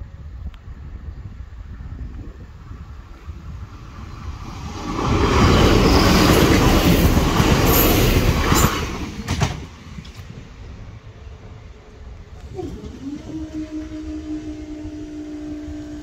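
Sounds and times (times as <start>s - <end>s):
train wheel and rail noise: 0.0s - 16.0s.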